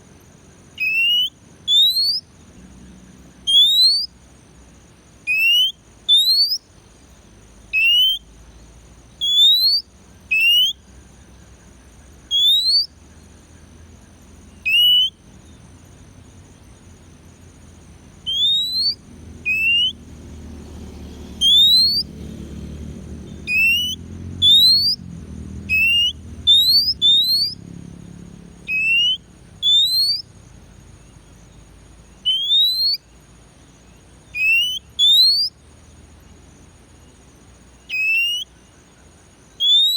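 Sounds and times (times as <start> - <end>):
magpie-robin rising whistle: 0.8 - 2.3, 3.5 - 4.2, 5.3 - 6.7, 7.7 - 8.3, 9.2 - 10.9, 12.2 - 13.0, 14.6 - 15.2, 18.2 - 20.1, 21.4 - 22.2, 23.3 - 27.6, 28.6 - 30.3, 32.2 - 33.1, 34.3 - 35.6, 37.9 - 38.5, 39.6 - 39.9.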